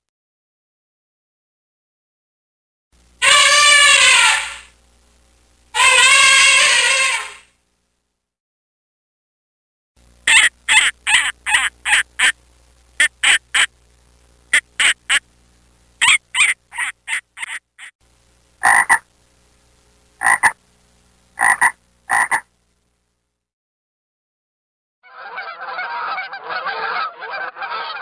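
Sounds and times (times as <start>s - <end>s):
frog croaking: 3.2s - 4.7s, 5.8s - 7.4s, 10.2s - 12.4s, 13.0s - 13.7s, 14.5s - 15.2s, 16.0s - 17.9s, 18.6s - 19.1s, 20.2s - 20.6s, 21.4s - 22.5s.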